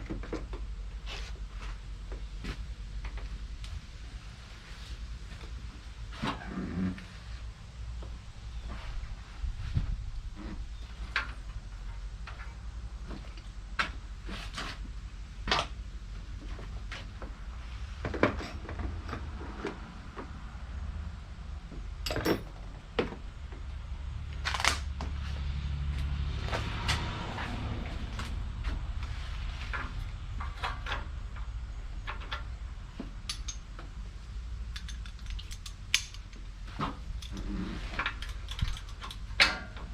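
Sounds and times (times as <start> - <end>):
metallic clinks and knocks: 22.0 - 22.7, 33.2 - 33.9, 34.7 - 39.9.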